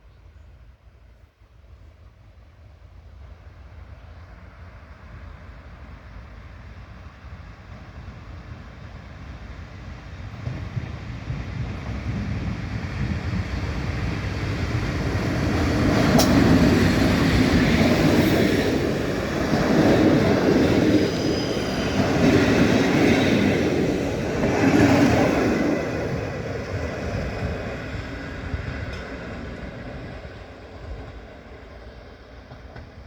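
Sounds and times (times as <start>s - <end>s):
train rumbling past: 1.6s - 33.0s
sharp click: 16.2s - 16.4s.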